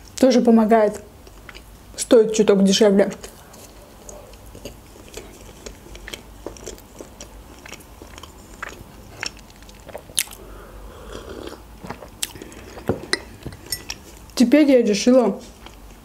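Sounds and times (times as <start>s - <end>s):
chewing with wet mouth clicks: 1.0s - 1.7s, 3.1s - 10.5s, 11.1s - 14.4s, 15.5s - 16.0s
person sipping tea: 8.2s - 14.2s.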